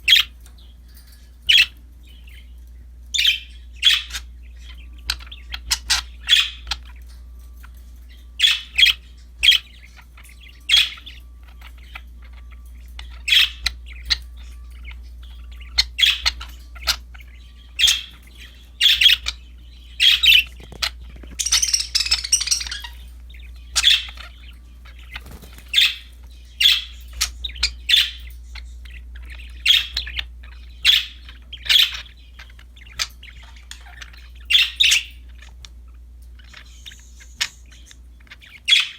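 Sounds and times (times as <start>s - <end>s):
budgerigars chirping: 0.0s - 38.9s
budgerigar squawking: 3.2s - 4.3s, 5.0s - 6.8s, 18.8s - 28.2s, 36.4s - 38.9s.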